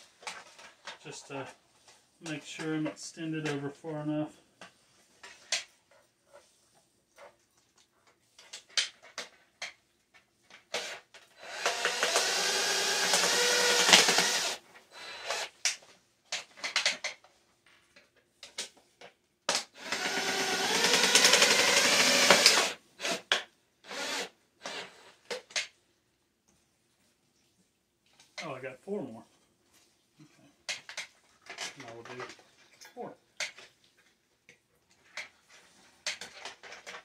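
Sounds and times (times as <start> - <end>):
power drill driving screws: 10.7 - 15.8, 19.6 - 25.4.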